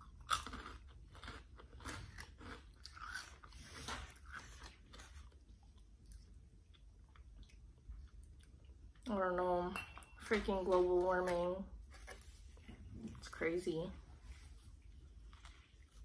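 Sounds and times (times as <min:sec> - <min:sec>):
crunchy snack being chewed: 0:00.0 - 0:09.0.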